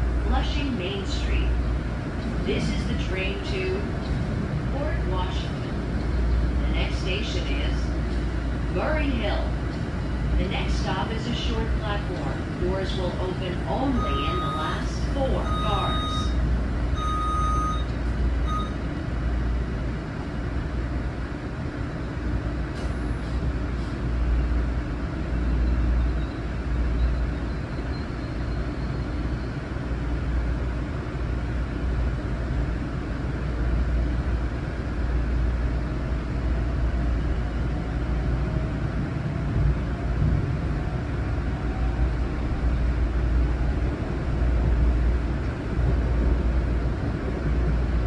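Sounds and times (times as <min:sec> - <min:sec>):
train wheels rumbling on track: 0:00.0 - 0:48.0
short beeps: 0:13.9 - 0:16.4, 0:17.0 - 0:18.8.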